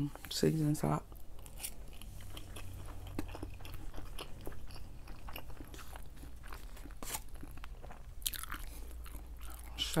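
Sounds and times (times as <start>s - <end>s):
close chewing with mouth clicks: 1.1s - 10.0s.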